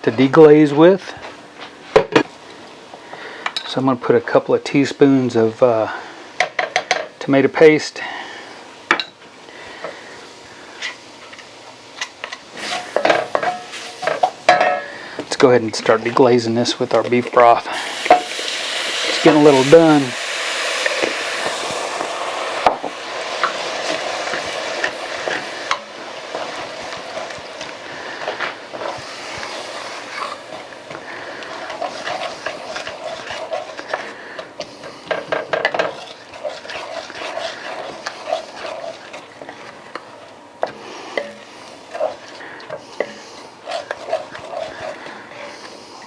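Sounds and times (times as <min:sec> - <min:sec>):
broth sizzling in a pan: 0:09.6 - 0:15.2, 0:17.7 - 0:39.7, 0:40.7 - 0:46.0
utensil scraping a pan: 0:12.6 - 0:15.0, 0:15.8 - 0:39.8, 0:41.1 - 0:45.8.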